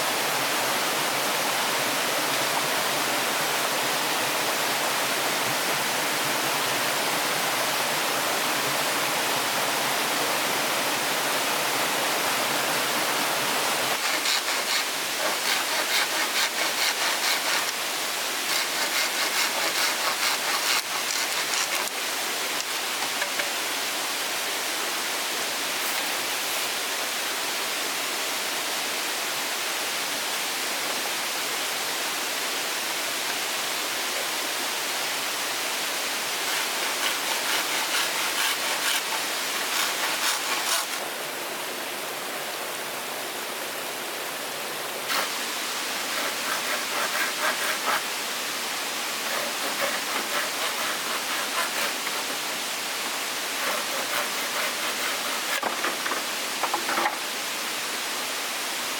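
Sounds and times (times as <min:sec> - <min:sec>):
running water rushing: 0:00.0 - 0:58.9
quick even strokes: 0:36.4 - 0:41.0, 0:49.2 - 0:52.5.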